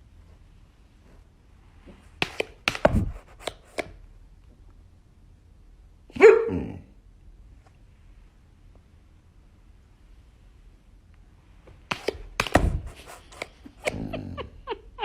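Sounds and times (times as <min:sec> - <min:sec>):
sharp knocks and thumps: 0:02.2 - 0:03.6, 0:11.9 - 0:13.3
dog bark falling in pitch: 0:06.2 - 0:06.8.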